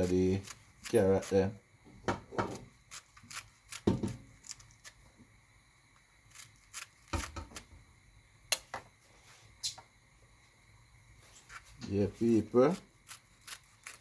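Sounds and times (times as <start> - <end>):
vegetables being grated by hand: 0.0 - 1.6, 12.1 - 14.0.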